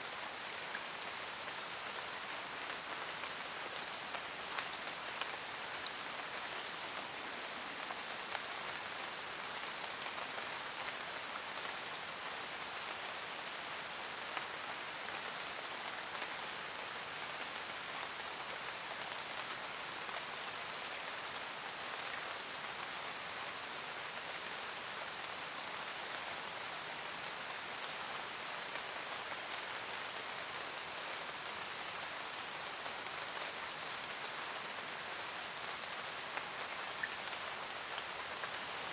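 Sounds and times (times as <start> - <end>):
rain on leaves: 0.0 - 38.9.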